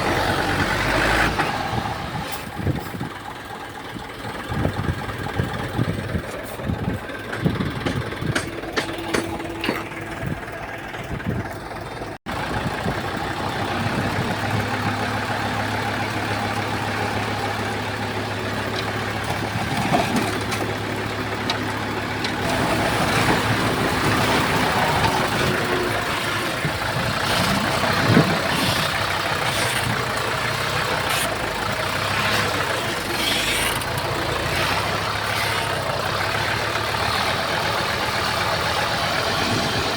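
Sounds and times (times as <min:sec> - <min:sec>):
bulldozer diesel engine running: 0:00.0 - 0:39.9
sharp clanks and knocks: 0:07.0 - 0:11.7.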